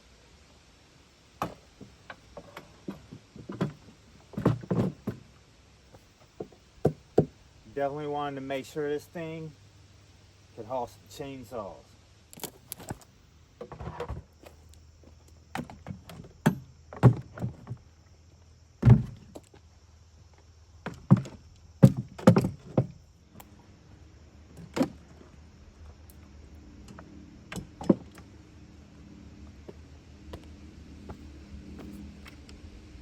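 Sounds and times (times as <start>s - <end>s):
objects knocking and thudding: 1.4s - 5.3s, 15.5s - 17.8s, 18.8s - 19.4s, 20.8s - 23.0s.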